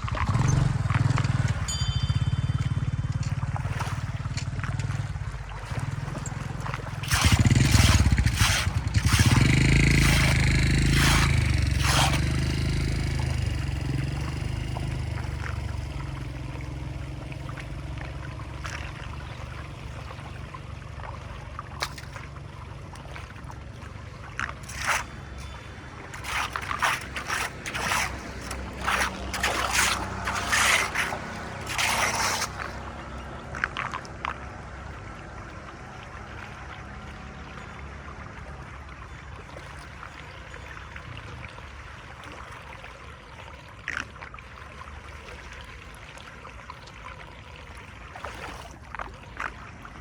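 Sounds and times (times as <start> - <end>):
water rushing and splashing: 0.0 - 50.0
sharp scrapes and knocks: 5.7 - 12.6, 24.4 - 32.8.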